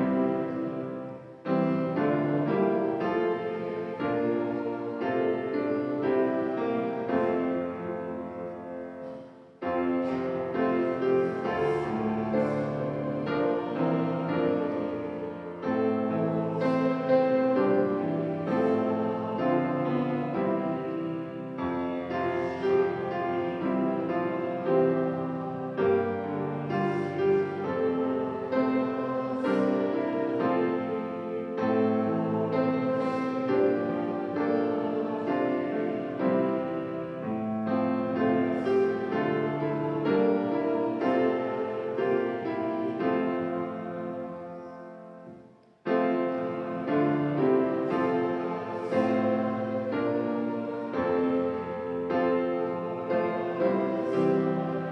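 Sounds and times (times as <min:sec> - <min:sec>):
piano playing a hymn: 0:00.0 - 0:54.9.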